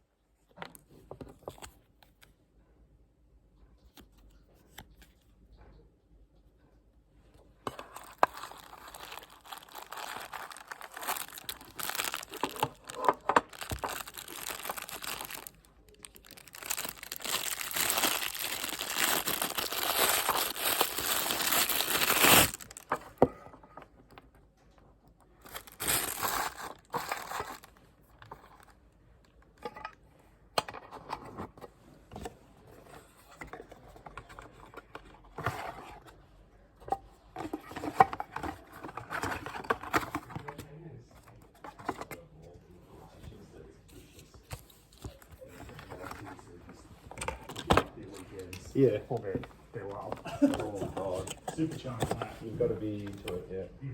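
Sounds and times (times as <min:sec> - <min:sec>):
packaging crinkling and tearing: 0:07.9 - 0:23.0, 0:25.4 - 0:27.8.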